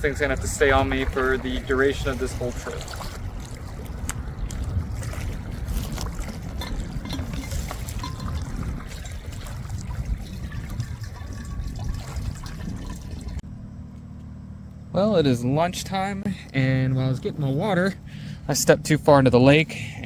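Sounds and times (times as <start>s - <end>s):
water trickling and sloshing: 0.0s - 13.4s
low rumble: 0.0s - 19.4s.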